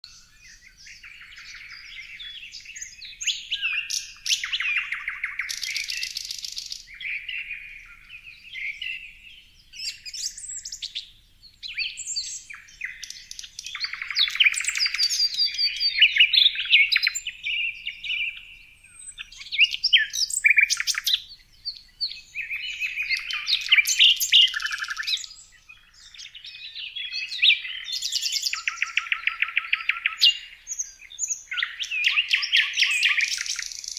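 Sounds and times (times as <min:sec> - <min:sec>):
songbirds singing and chirping: 0:00.0 - 0:33.9.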